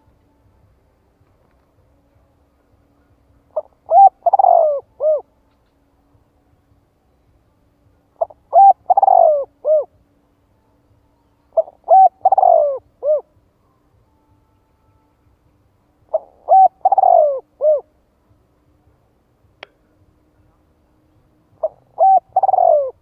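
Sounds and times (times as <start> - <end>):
dove cooing: 2.9 - 5.3, 8.2 - 10.0, 11.5 - 13.4, 16.0 - 18.0, 21.6 - 23.0.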